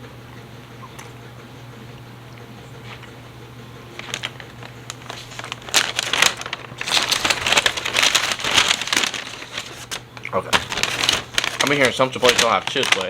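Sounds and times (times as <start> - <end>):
chip bag crinkling: 3.9 - 13.0.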